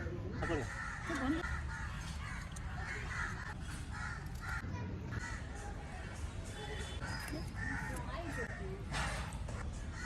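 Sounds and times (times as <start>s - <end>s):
crows cawing: 0.3s - 5.6s.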